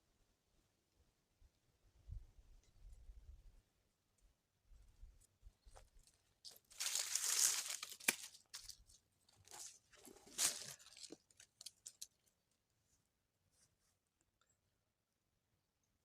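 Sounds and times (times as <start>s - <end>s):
material rustling and crinkling: 6.4s - 12.1s.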